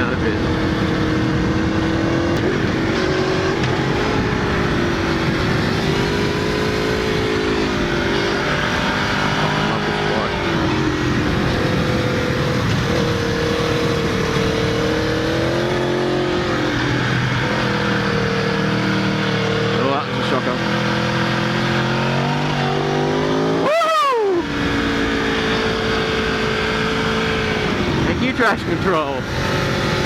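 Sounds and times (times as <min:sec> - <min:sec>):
motorcycle engine revving: 0:00.0 - 0:30.0
wind rushing: 0:10.3 - 0:18.2.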